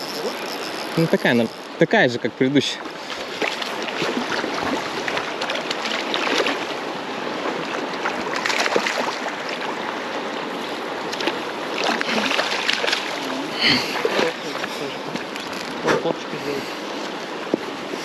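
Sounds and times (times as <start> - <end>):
river water rushing: 0.0 - 18.0
small water splashes: 2.7 - 15.9.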